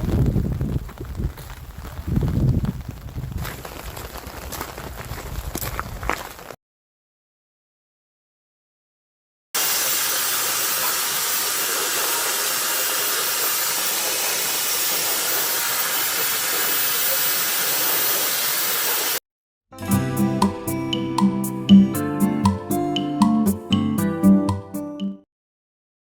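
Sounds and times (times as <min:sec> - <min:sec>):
loud steady hiss: 0:09.6 - 0:19.2
acoustic guitar music: 0:19.8 - 0:25.2.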